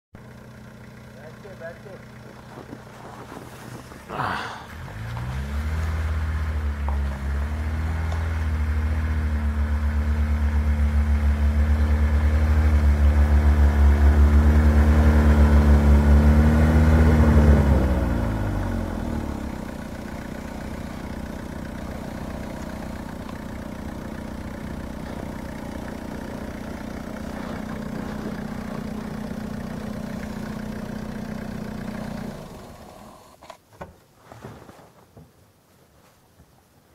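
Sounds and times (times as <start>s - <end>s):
diesel engine revving hard: 4.0s - 20.0s.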